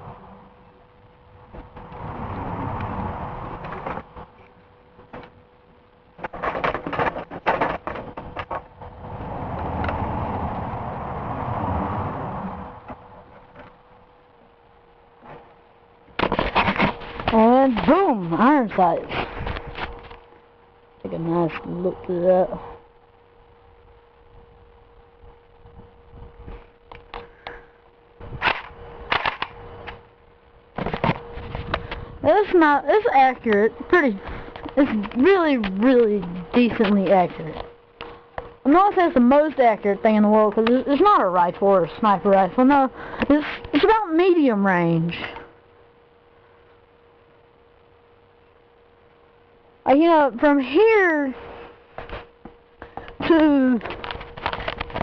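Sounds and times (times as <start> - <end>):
steady rushing noise: 0.0 - 46.2
faint steady hum: 0.0 - 55.0
airsoft rifle shots: 28.4 - 29.6
clicks and knocks of gun parts: 28.4 - 30.0.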